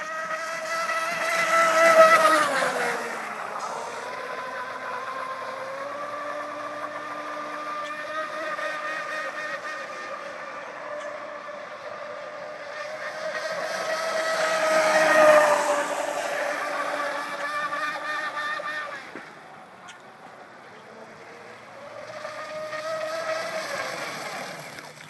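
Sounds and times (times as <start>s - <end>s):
hull hissing on water: 0.5s - 10.1s.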